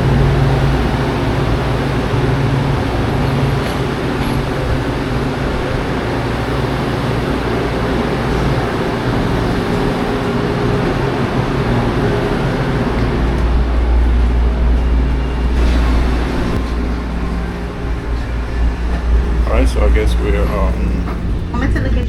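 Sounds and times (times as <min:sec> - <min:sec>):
passenger train coach hum and rumble: 0:00.0 - 0:22.0.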